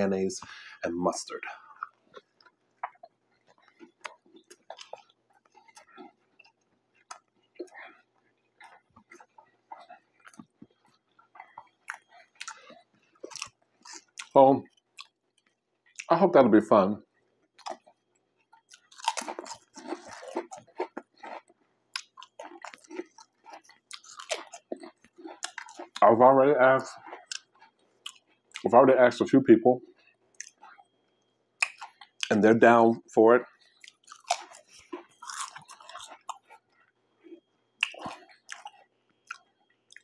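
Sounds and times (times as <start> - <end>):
chewing crunchy chips: 0.4 - 16.1, 17.1 - 29.2, 29.8 - 32.8, 33.4 - 40.0
wet mouth sounds: 37.8 - 40.0.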